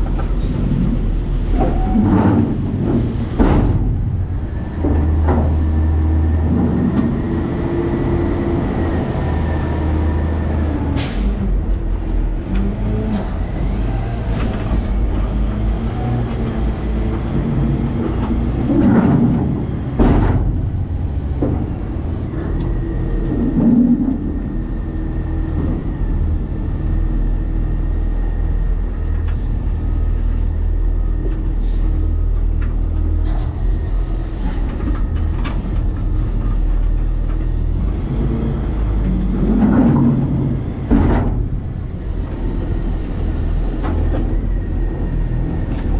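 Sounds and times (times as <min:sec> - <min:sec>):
heavy knocks and clatters: 0:00.0 - 0:08.2, 0:14.3 - 0:24.6, 0:34.4 - 0:45.9
garbage truck engine rumbling: 0:00.0 - 0:45.9.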